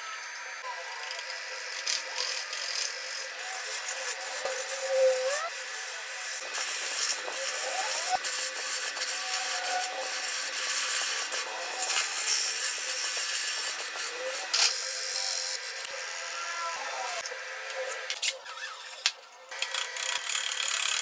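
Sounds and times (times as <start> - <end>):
squeaky whines: 4.4 - 5.5.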